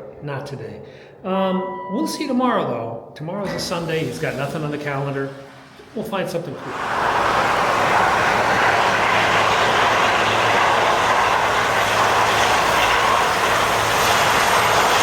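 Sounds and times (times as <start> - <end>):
helicopter rotors and turbines roaring: 6.6 - 15.0.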